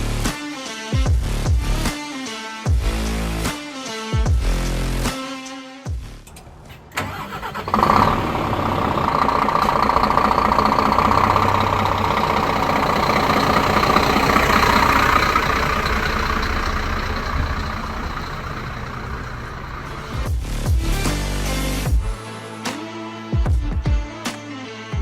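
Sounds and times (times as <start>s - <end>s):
truck diesel engine running: 6.3s - 22.0s.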